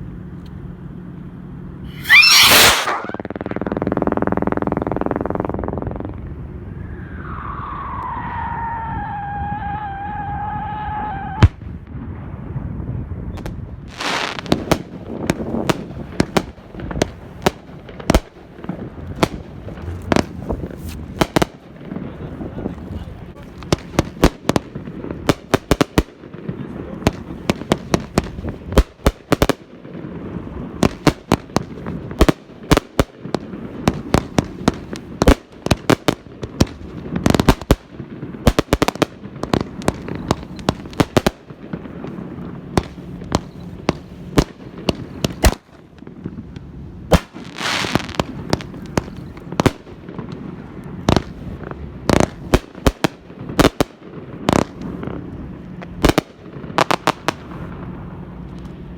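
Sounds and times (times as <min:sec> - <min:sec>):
hissing burst: 0:01.9 - 0:03.4
fireworks bangs and pops: 0:01.9 - 0:06.4, 0:11.2 - 0:12.6, 0:13.2 - 0:58.9.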